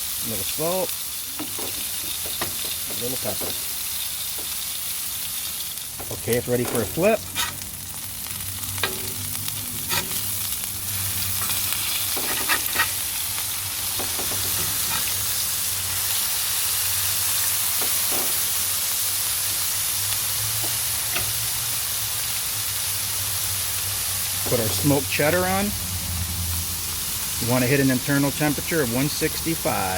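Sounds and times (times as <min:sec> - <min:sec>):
burger patties sizzling: 0:00.0 - 0:29.9
spatula scraping and knocking: 0:06.0 - 0:07.7, 0:09.9 - 0:10.3, 0:11.4 - 0:13.0.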